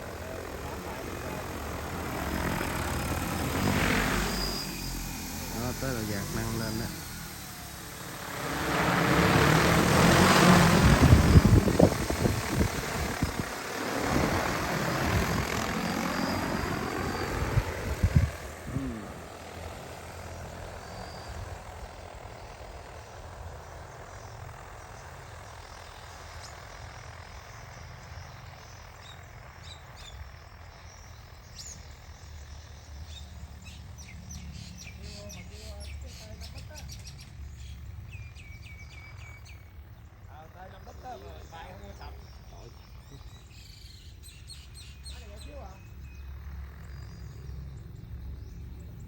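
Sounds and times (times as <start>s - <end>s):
drone propellers whirring: 0.0s - 49.0s
bird chirps: 28.0s - 49.0s.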